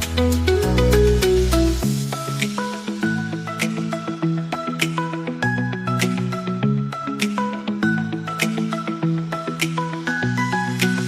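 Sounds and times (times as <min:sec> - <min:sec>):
melodic music with steady beat: 0:00.0 - 0:11.0.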